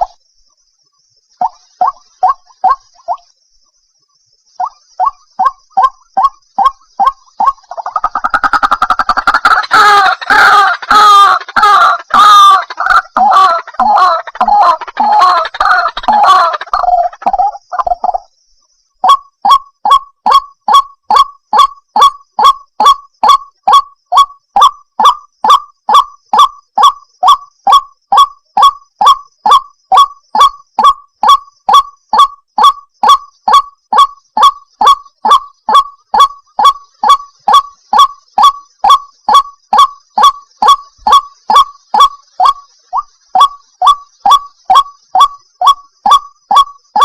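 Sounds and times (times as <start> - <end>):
waterhen calling: 1.4 - 3.2, 4.6 - 18.2, 25.0 - 47.0.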